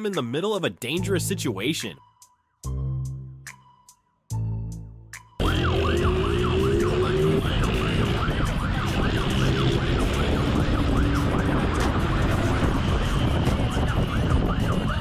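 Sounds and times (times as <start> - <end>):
deep music notes: 2.7 - 14.6
engine accelerating: 5.4 - 14.4
police siren yelping: 5.4 - 15.0
road noise: 5.4 - 15.0.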